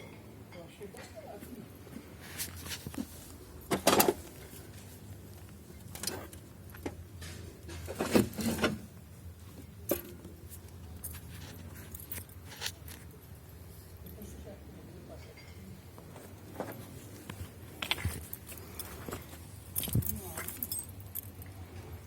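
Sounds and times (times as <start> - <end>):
scrap metal clinking and rattling: 9.8 - 13.4, 17.7 - 21.9.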